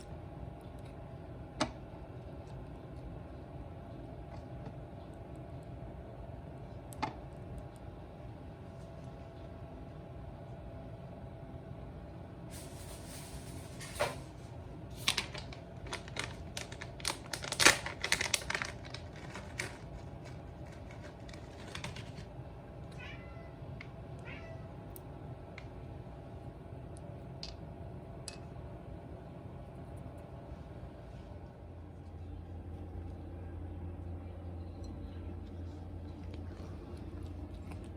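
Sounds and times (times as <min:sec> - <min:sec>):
cat crunching food: 0:15.0 - 0:22.5, 0:35.0 - 0:37.9
cat meowing: 0:22.9 - 0:23.6, 0:24.2 - 0:24.8.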